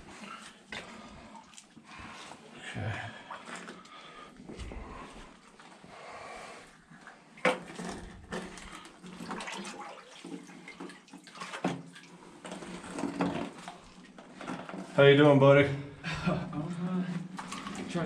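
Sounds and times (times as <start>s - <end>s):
person wading through water: 0.0s - 7.4s, 8.5s - 12.6s.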